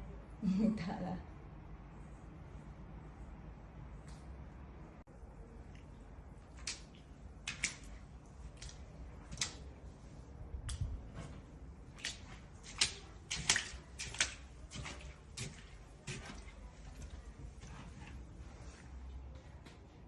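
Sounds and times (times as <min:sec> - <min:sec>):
shallow water splashing: 0:06.2 - 0:19.0.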